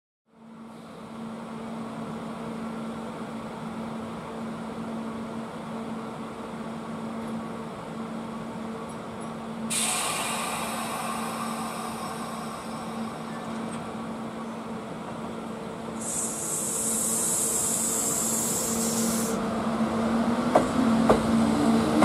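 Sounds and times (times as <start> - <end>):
train equipment humming: 0.4 - 22.0
loud hiss of air: 9.7 - 14.0, 15.9 - 19.5.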